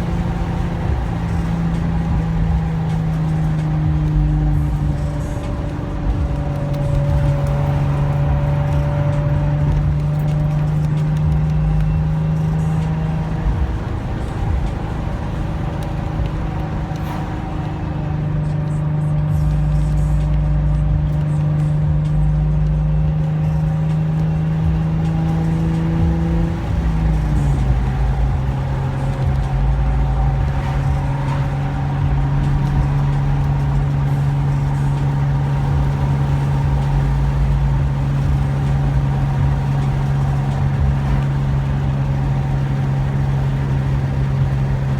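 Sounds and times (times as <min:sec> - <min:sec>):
car engine droning: 0:00.0 - 0:44.9.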